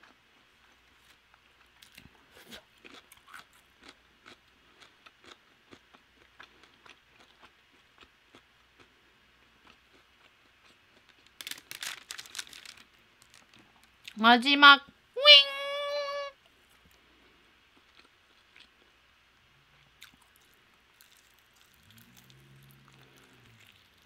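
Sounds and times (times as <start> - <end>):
crunchy chewing: 0.0 - 14.2, 16.7 - 19.0, 19.9 - 24.0.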